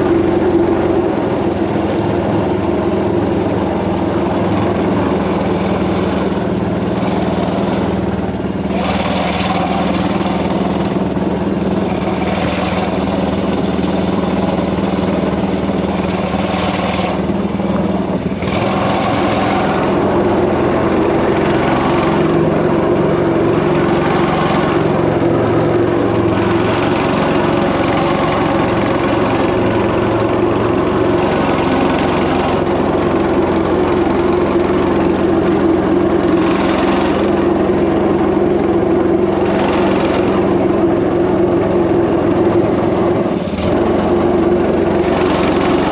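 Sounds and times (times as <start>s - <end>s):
boat engine running: 0.0s - 45.9s.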